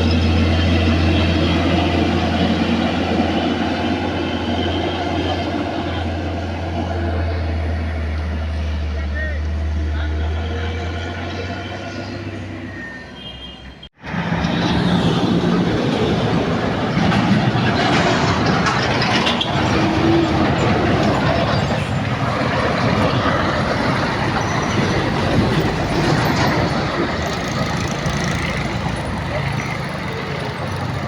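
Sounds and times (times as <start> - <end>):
old truck engine running: 14.1 - 31.0.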